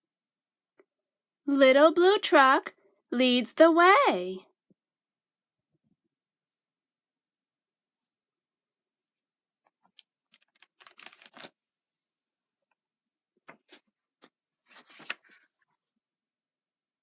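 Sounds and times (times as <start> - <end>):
book pages rustling: 9.7 - 11.5, 13.5 - 15.8.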